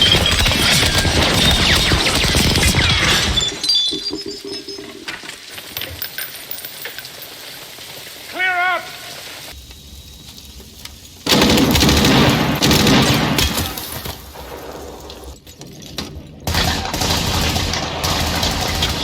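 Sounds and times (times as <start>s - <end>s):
automatic and rifle gunfire: 0.0s - 3.2s, 11.3s - 13.8s, 16.5s - 19.0s.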